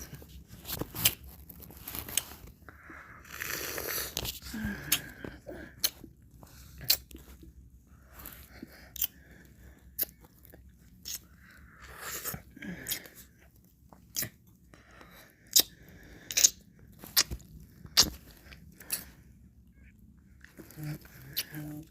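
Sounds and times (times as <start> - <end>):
lip smacks and clicks: 5.8 - 6.1, 6.8 - 7.5, 8.9 - 9.2, 10.0 - 11.3, 13.9 - 14.5, 15.5 - 19.1.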